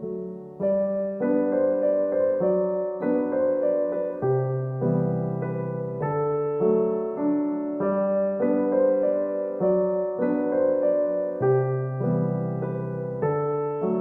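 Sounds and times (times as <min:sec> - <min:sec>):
gentle piano chords: 0:00.0 - 0:14.0.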